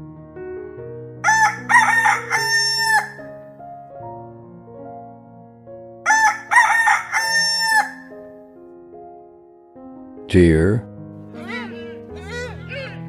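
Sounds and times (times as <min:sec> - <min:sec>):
soft background music: 0:00.0 - 0:13.0
rooster crowing: 0:01.2 - 0:03.2, 0:06.1 - 0:08.1.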